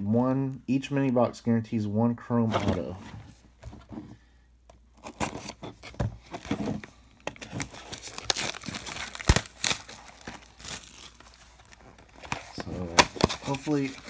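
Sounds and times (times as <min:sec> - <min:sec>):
plastic wrapping tearing and crinkling: 0:07.3 - 0:14.0.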